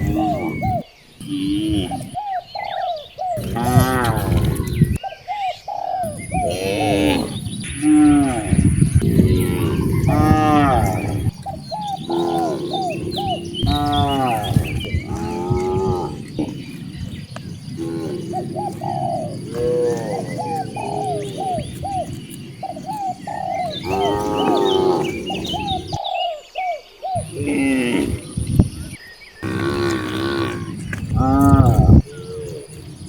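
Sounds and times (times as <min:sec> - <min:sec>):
small birds chirping: 0:00.0 - 0:33.0
cattle mooing: 0:03.4 - 0:04.8, 0:06.5 - 0:16.8, 0:17.8 - 0:26.0, 0:29.4 - 0:32.0.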